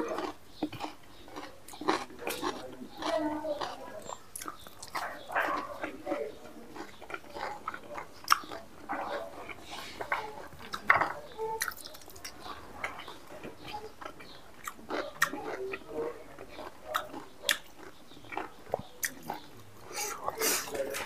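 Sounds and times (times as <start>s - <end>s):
wet chewing and lip smacking: 0.0s - 21.0s
sharp mouth clicks: 8.2s - 8.6s, 16.9s - 19.3s.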